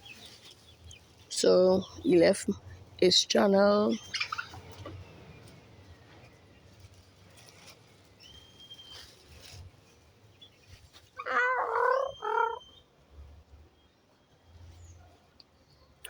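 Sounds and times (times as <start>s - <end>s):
chicks chirping: 3.6s - 5.2s
raspy chicken calls: 11.2s - 12.7s.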